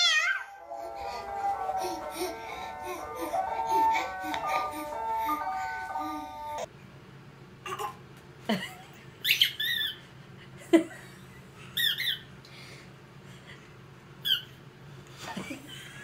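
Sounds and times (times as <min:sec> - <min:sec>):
baby squealing: 0:00.0 - 0:00.5.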